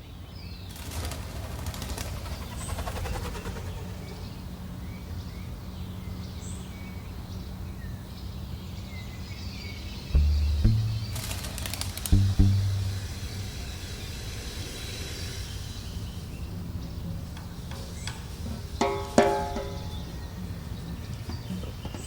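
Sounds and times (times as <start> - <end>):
small birds chirping: 0.0 - 18.8
low background rumble: 10.2 - 18.7.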